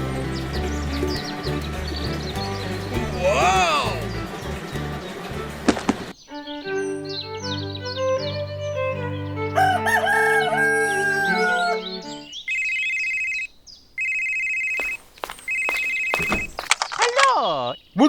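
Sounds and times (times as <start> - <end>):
music: 0.0 - 12.3
rooster crowing: 9.5 - 12.1
telephone ringing: 9.6 - 16.7.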